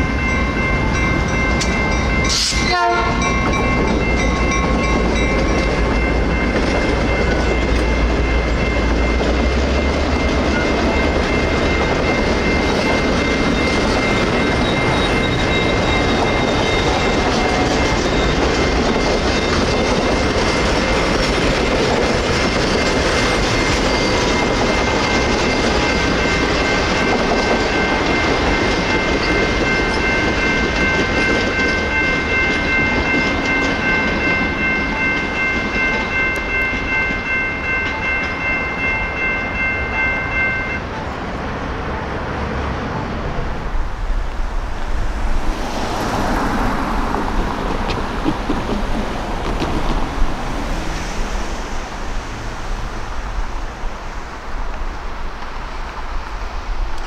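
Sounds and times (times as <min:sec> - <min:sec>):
train wheels clacking on rails: 0:00.0 - 0:40.8, 0:44.3 - 0:57.0
crossing warning bell ringing: 0:00.0 - 0:42.4.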